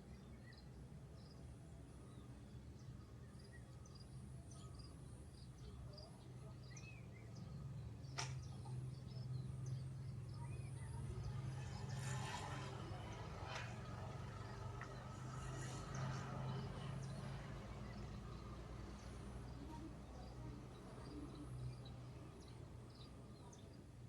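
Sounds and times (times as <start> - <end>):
sharp click: 8.2 - 8.5.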